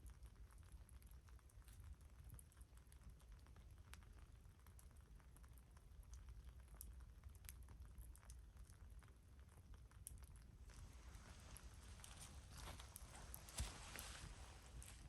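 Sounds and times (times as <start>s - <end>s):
campfire crackling: 9.6s - 15.0s.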